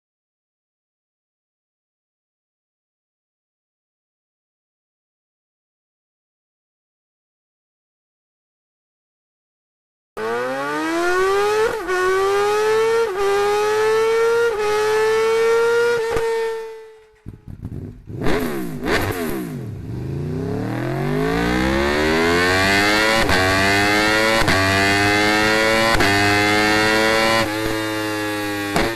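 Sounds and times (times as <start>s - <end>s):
motorcycle engine accelerating: 10.2s - 28.9s.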